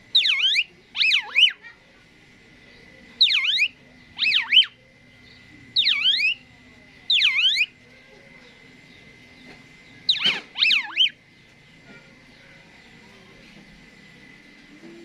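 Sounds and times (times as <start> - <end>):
starling whistling: 0.1 - 1.6, 3.2 - 6.5, 7.1 - 7.8, 10.1 - 11.2.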